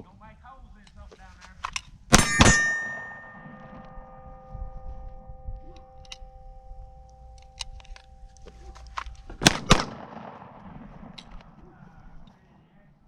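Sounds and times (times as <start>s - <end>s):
pistol shots: 1.7s - 4.3s, 5.3s - 12.4s.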